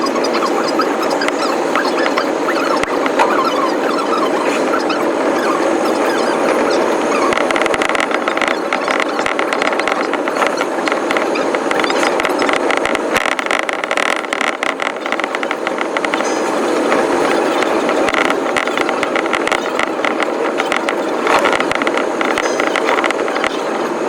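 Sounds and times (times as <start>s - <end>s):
sped-up train running chatter: 0.0s - 9.4s.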